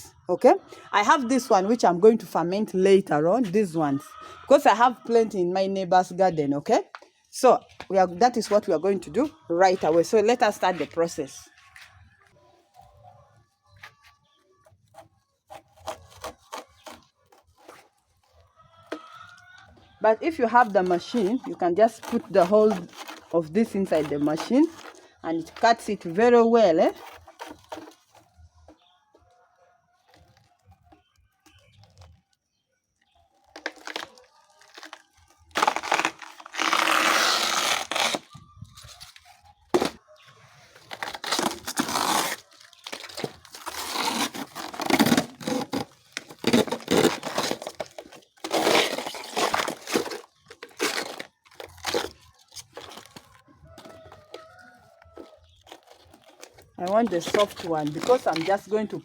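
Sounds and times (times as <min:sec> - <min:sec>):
plant stem fibres ripping: 0:15.5 - 0:19.4, 0:20.3 - 0:26.2, 0:33.4 - 0:40.0, 0:40.8 - 0:59.0.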